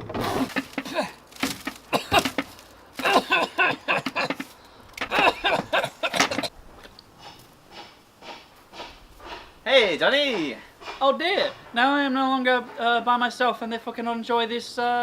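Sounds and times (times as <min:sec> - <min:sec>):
person's wordless vocal bursts: 0:00.3 - 0:01.2.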